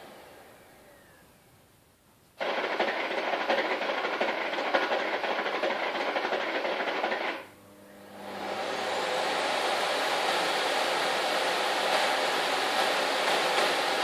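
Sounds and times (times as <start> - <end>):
vacuum cleaner running: 0.0 - 1.3, 2.4 - 14.0.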